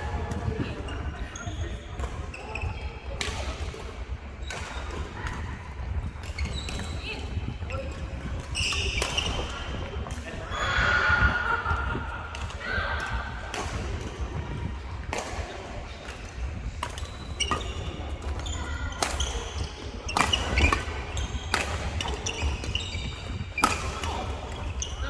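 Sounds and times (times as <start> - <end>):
shoes squeaking on court floor: 6.4 - 9.5, 16.1 - 25.0.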